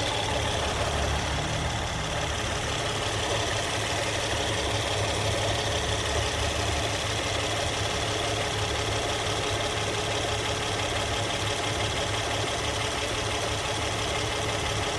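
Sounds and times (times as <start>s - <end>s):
engine idling: 0.0s - 14.9s.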